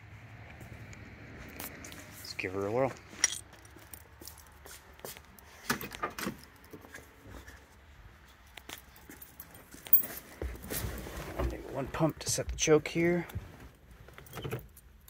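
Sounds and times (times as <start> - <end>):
keys jingling: 3.2 - 4.6, 8.6 - 10.2.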